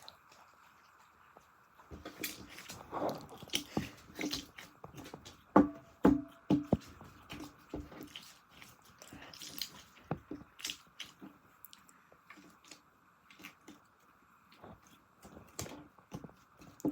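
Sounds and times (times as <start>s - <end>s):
hands squishing slime: 2.0s - 11.2s.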